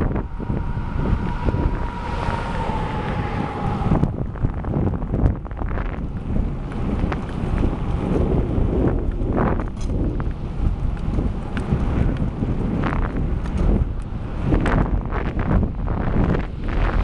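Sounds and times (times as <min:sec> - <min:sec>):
thin steady whine: 0:00.0 - 0:11.0
wind buffeting microphone: 0:00.0 - 0:17.0.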